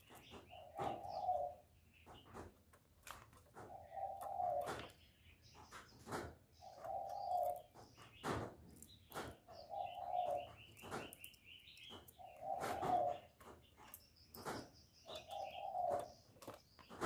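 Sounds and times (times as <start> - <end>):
small bird chirping: 0.0 - 17.0
dove cooing: 0.3 - 1.7, 3.6 - 5.0, 6.6 - 7.8, 9.5 - 11.0, 11.9 - 13.4, 15.1 - 16.6.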